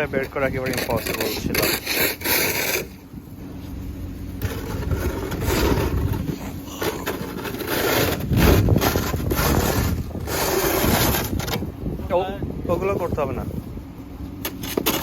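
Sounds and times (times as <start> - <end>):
steady low rumble: 0.0 - 15.0
snow shovels scraping snow: 0.4 - 3.8, 4.4 - 11.6.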